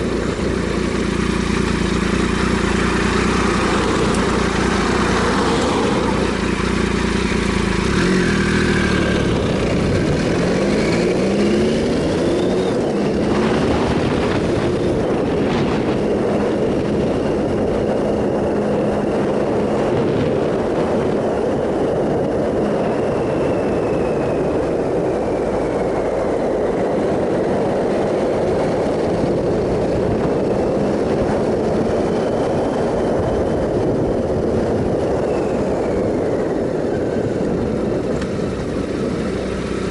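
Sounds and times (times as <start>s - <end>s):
loud wind rush: 0.0s - 39.9s
motorcycle engine pulling: 0.0s - 39.9s.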